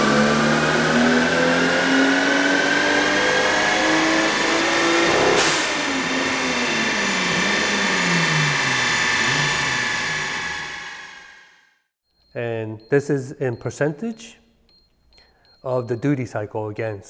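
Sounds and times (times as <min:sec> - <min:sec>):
turbocharged car engine accelerating: 0:00.0 - 0:11.6.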